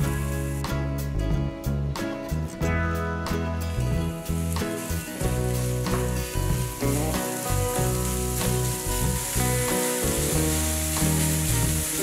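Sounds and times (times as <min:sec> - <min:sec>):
background music: 0:00.0 - 0:12.0
meat sizzling in a pan: 0:03.7 - 0:12.0.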